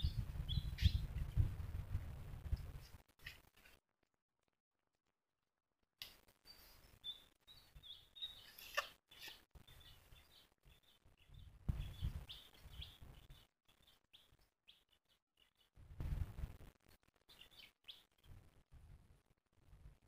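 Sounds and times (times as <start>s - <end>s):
small birds chirping: 0.0s - 1.9s, 6.1s - 18.7s
low rumbles on microphone: 0.0s - 3.0s, 11.3s - 13.4s, 15.8s - 16.7s.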